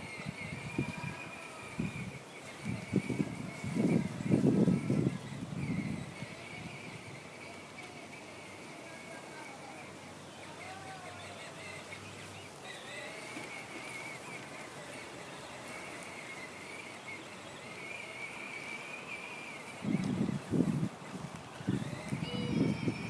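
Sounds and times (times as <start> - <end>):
birds chirping: 0.0 - 23.0
outdoor background hiss: 0.0 - 23.0.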